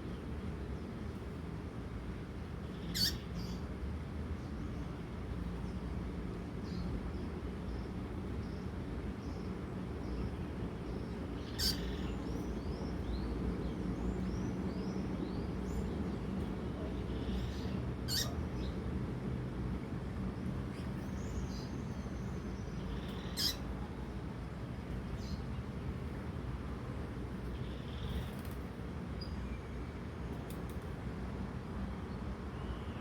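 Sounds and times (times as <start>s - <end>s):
low background noise: 0.0s - 33.0s.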